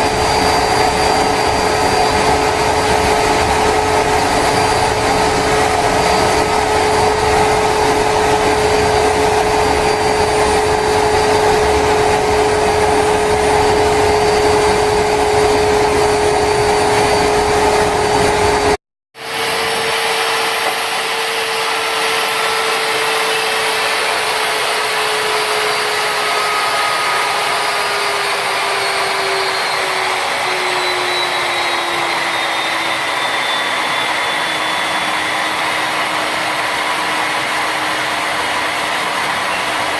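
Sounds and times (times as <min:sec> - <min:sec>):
jet engine rush and whine: 0:00.0 - 0:39.9.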